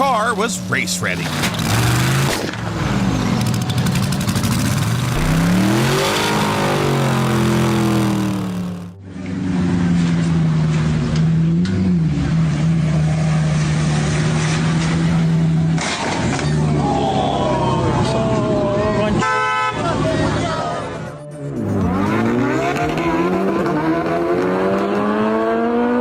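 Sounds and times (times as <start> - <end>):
car engine revving: 1.2 - 15.6, 21.5 - 26.0
engine running steadily: 3.4 - 12.7.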